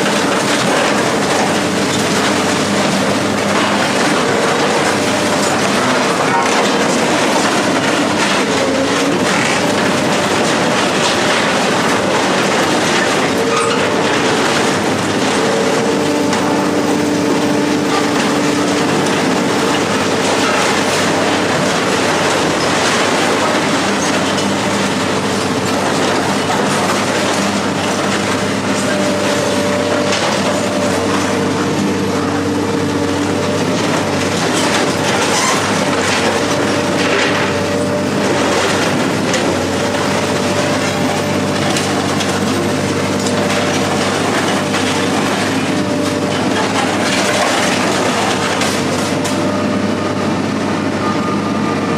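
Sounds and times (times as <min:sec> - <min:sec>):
scrap metal scraping and clanking: 0:00.0 - 0:49.4
heavy machine engine drone: 0:00.0 - 0:51.9.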